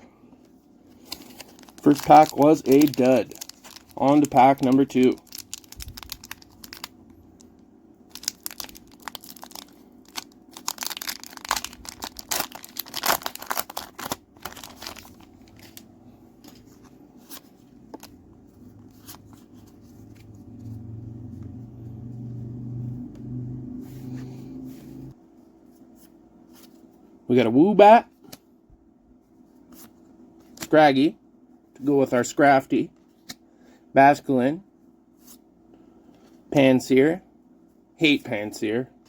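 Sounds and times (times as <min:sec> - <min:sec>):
low steady hum: 0:00.0 - 0:39.0
foil wrapper tearing and crinkling: 0:01.0 - 0:07.0, 0:08.1 - 0:15.8.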